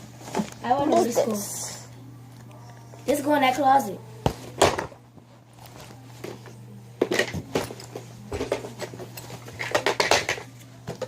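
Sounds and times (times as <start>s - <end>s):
toys clattering and knocking: 7.0s - 11.0s.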